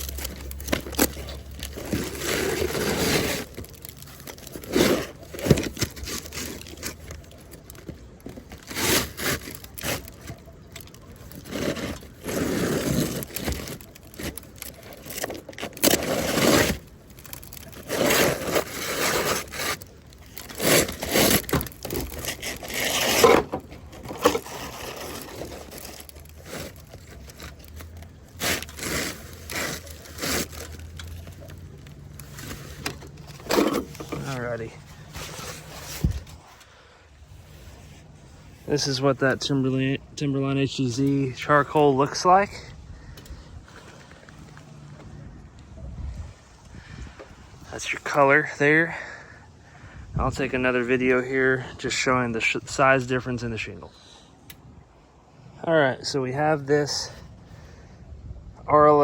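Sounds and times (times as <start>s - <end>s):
scraping and rustling shingles: 0.0s - 45.2s.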